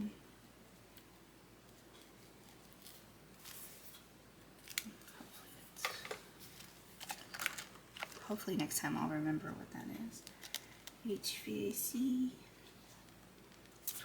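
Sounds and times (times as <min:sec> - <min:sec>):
paper bills rustling: 0:05.8 - 0:08.4.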